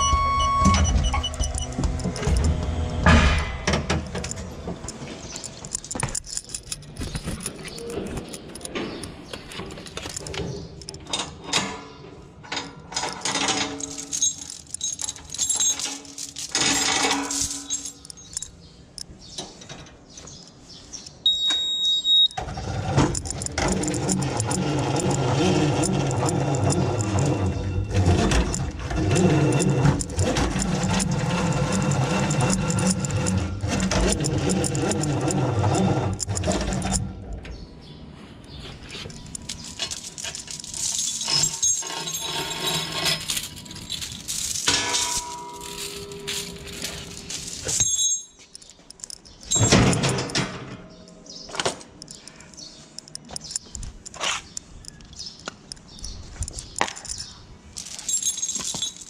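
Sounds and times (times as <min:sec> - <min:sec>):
engine running: 0:00.0 - 0:04.3
metal knocks: 0:00.0 - 0:06.5
metallic clinks and rattles: 0:00.0 - 0:21.2, 0:22.5 - 0:37.6, 0:38.4 - 0:59.0.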